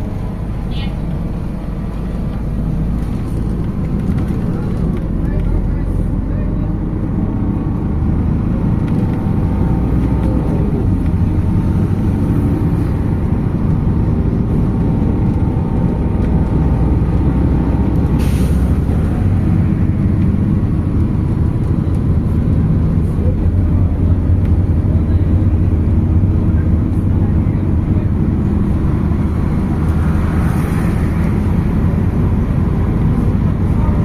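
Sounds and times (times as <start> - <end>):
bus engine running: 0.0 - 34.0
air brake hiss: 18.2 - 18.7.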